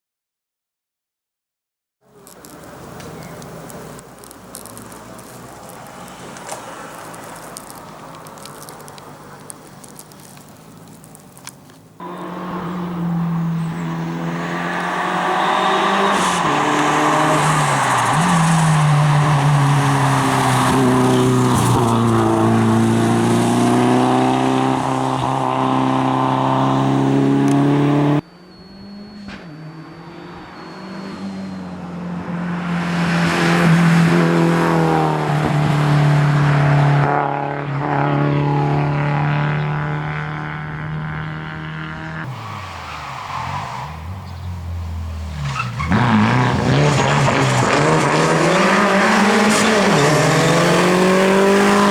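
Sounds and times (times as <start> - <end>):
rally car engine revving: 12.0 - 28.2, 28.8 - 42.5, 43.5 - 51.9.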